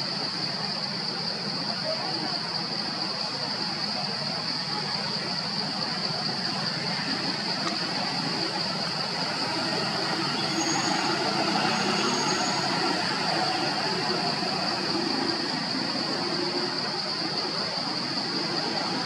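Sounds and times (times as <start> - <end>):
faint thin whistle: 10.4 - 12.7.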